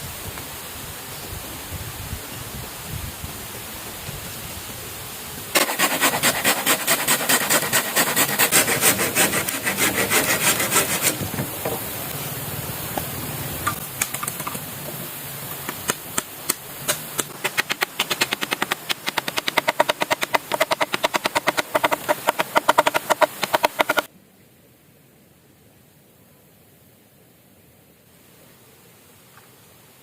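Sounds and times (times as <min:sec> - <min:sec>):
hand saw cutting bamboo: 0:05.6 - 0:11.3, 0:15.9 - 0:24.1.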